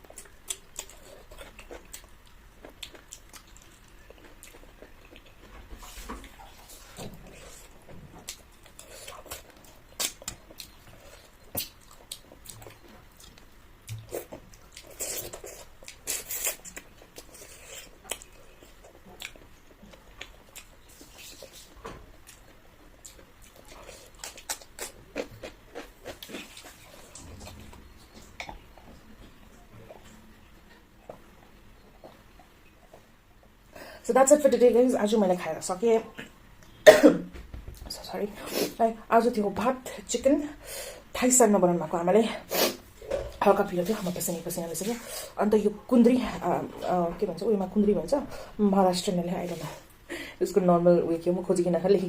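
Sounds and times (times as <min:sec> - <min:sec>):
person chewing: 0:00.0 - 0:31.3.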